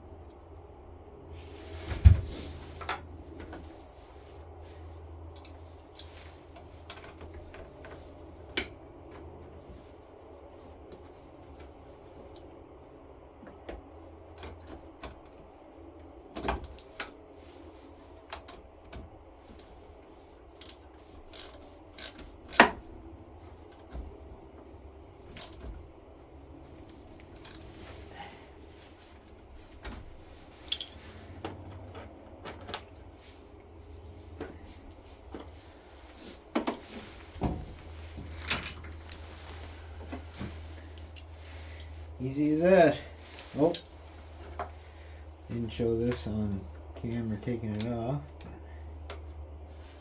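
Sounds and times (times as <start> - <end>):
faint low hum: 0.0 - 50.0
metallic clicks of hand tools: 20.6 - 22.7.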